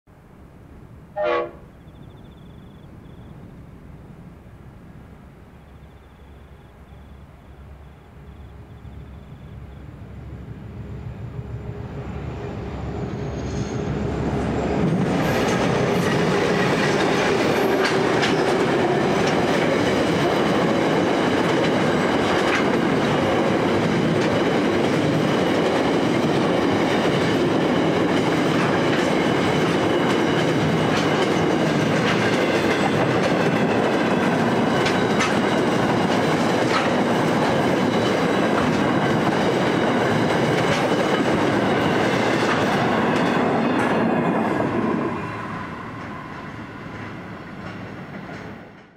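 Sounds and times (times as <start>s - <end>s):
diesel locomotive engines: 0.3s - 48.9s
faint high wheel squeal: 5.6s - 11.2s, 12.0s - 14.2s
wheels clacking over rail joints: 14.8s - 44.4s.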